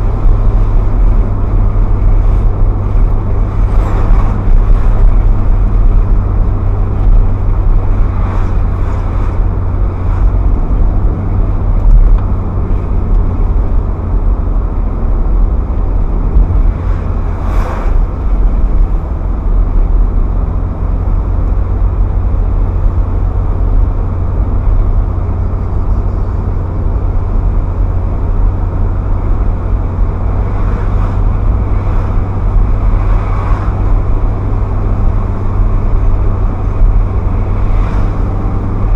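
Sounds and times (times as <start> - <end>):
car engine droning: 0.0 - 38.9
tyre and road noise: 0.0 - 38.9.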